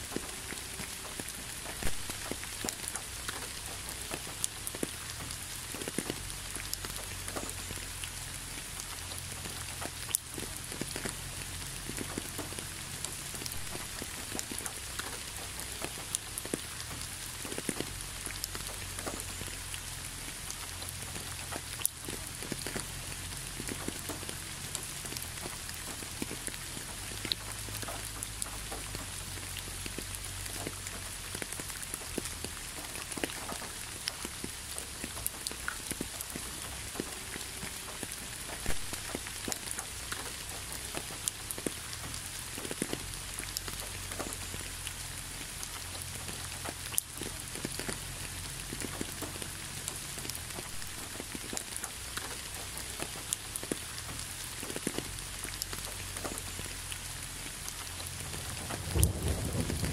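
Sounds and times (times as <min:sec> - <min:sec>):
rain hiss: 0:00.0 - 0:59.9
faint low rumble: 0:57.6 - 0:59.9.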